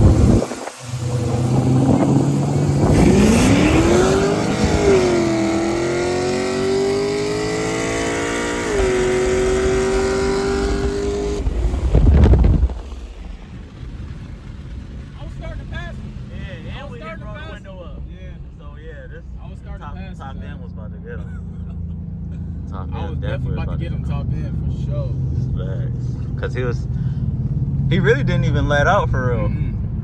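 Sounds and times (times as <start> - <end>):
rush of noise: 0.0 - 20.2
car engine revving at full throttle: 0.0 - 30.0.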